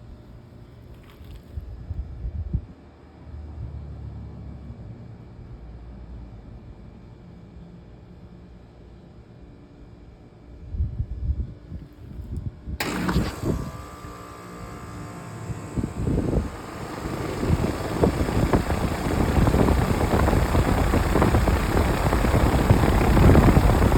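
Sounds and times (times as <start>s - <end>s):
air conditioner unit running: 12.8s - 23.9s.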